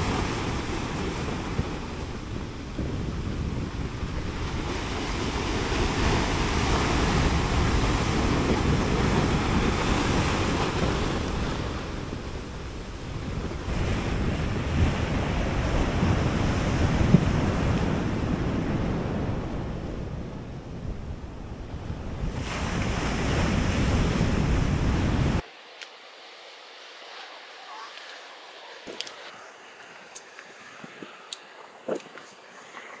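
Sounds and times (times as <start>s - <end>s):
surf breaking on shore: 0.0s - 20.5s, 21.4s - 25.4s
wind buffeting microphone: 0.0s - 25.4s.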